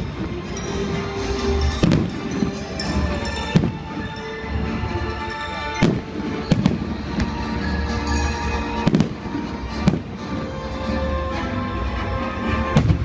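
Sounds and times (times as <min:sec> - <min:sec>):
fireworks bangs: 0:00.0 - 0:04.4, 0:05.3 - 0:10.6, 0:12.7 - 0:13.0
music playing: 0:00.0 - 0:13.0.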